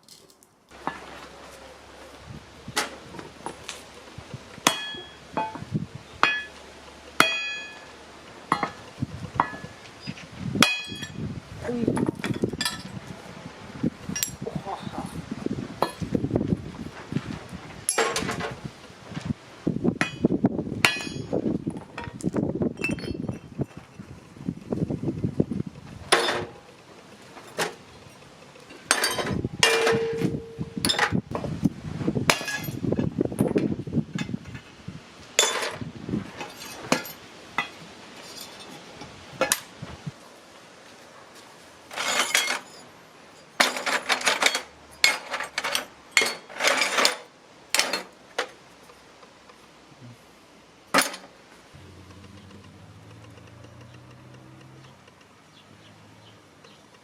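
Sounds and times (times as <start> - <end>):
metallic knocks and clinks: 7.2 - 7.9, 12.0 - 12.9, 17.9 - 18.5, 20.0 - 22.2, 22.8 - 23.9, 27.4 - 31.2, 41.9 - 47.2.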